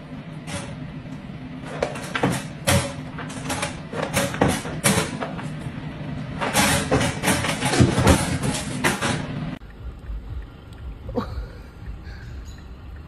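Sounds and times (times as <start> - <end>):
wire crate door rattling: 1.6 - 5.6, 6.3 - 9.5.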